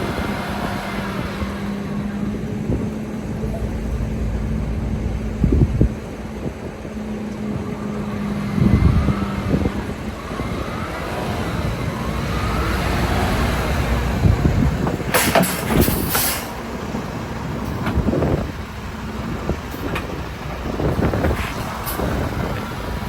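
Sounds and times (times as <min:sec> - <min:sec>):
semi truck running: 0:00.0 - 0:23.0.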